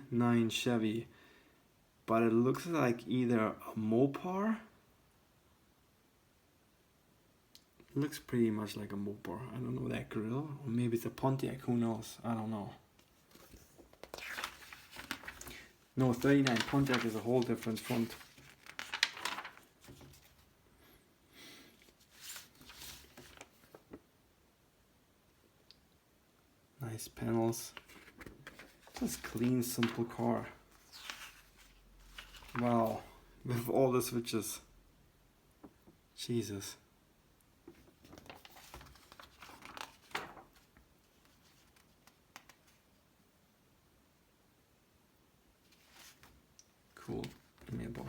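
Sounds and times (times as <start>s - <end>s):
magazine pages turning: 13.0s - 20.5s, 21.8s - 24.0s, 27.5s - 33.2s, 37.7s - 42.8s, 45.7s - 46.4s, 47.0s - 48.0s.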